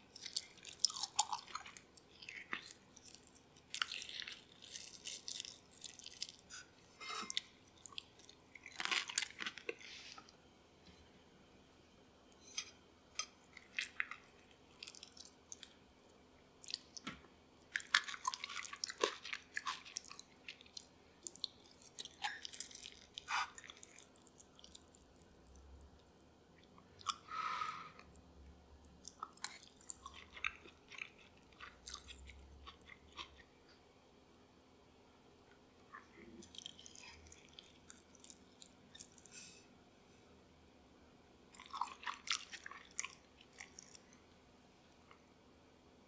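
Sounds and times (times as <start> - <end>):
crisp food crackles and clicks: 0.1 - 6.7, 7.4 - 10.3, 16.6 - 27.2.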